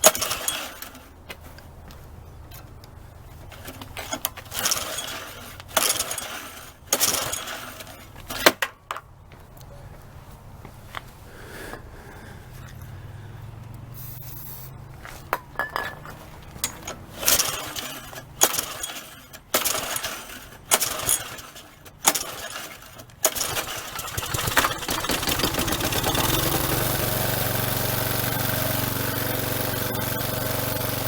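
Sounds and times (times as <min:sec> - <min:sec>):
string trimmer pull-starting: 0:00.0 - 0:01.2, 0:03.6 - 0:08.7, 0:16.5 - 0:31.0
small engine running steadily: 0:12.7 - 0:14.8, 0:16.6 - 0:31.0.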